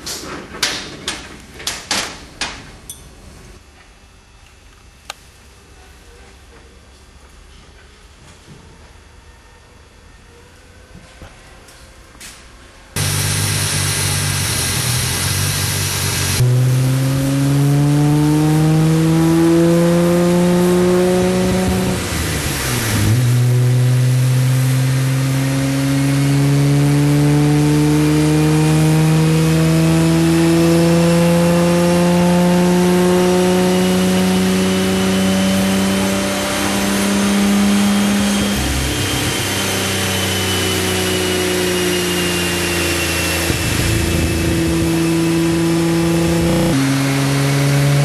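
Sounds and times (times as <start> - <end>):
high turbo whine: 12.9 - 48.0
car engine revving on dyno: 13.0 - 48.0.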